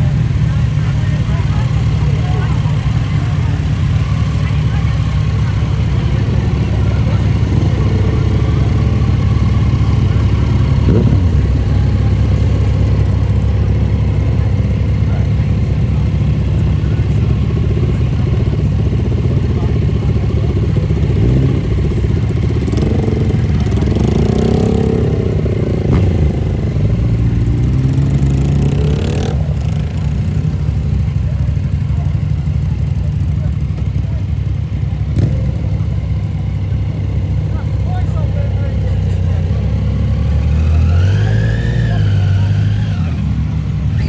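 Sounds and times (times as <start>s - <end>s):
motorcycle engines revving: 0.0s - 44.0s.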